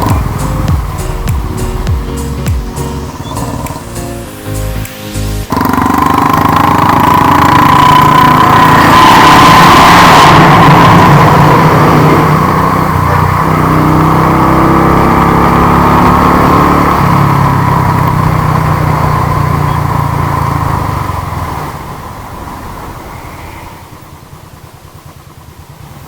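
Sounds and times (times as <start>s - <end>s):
motorcycle engine running: 0.0s - 4.3s, 5.5s - 26.0s.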